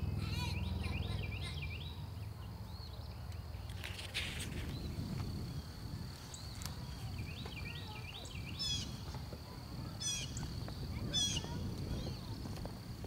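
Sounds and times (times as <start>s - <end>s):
songbirds calling and chirping: 0.0s - 13.0s.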